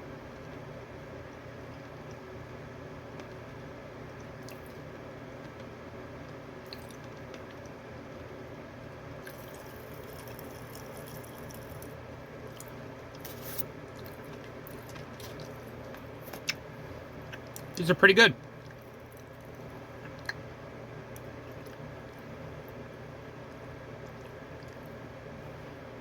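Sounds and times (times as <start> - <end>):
steady background hum: 0.0 - 26.0
wet chewing: 12.5 - 16.6, 21.1 - 22.3.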